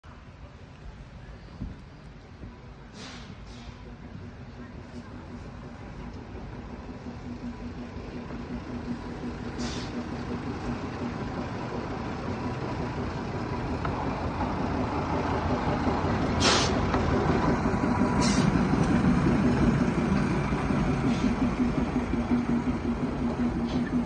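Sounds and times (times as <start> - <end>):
diesel locomotive rumbling: 0.0 - 24.0
air hissing: 16.4 - 16.8, 18.2 - 18.6.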